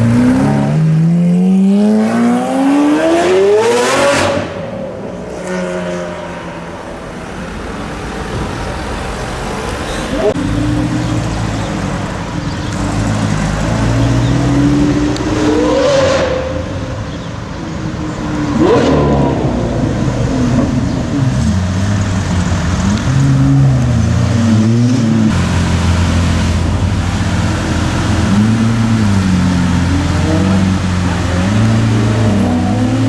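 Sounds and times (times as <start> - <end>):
other car engines: 0.0 - 33.0
sports car exhaust revving: 18.6 - 33.0.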